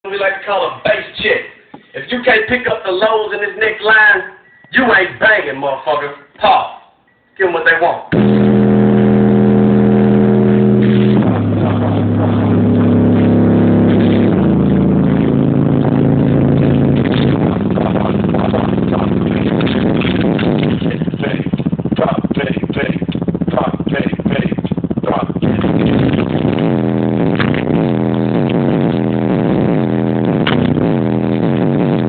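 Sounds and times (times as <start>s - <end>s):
deep bass test tones: 8.1s - 32.0s.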